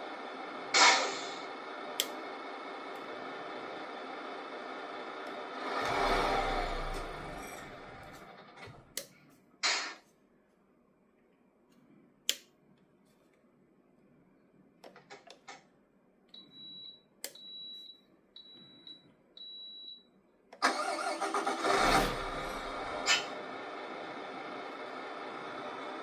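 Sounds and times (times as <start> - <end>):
simulated diesel engine idling: 0.0 - 8.6, 20.7 - 26.0.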